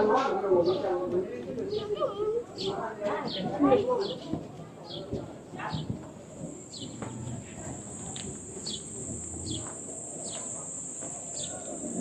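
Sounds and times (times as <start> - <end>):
low background murmur: 0.0 - 12.0
steady high-pitched buzz: 6.4 - 12.0
high falling chirps: 7.8 - 12.0.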